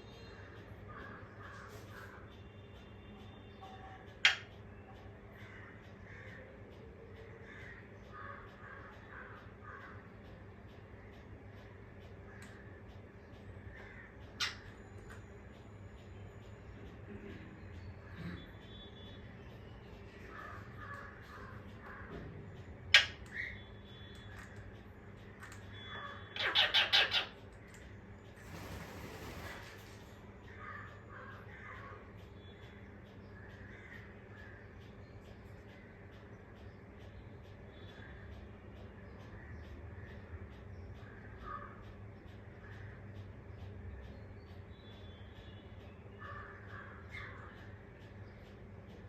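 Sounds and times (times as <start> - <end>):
parrot squawking: 26.0 - 27.4.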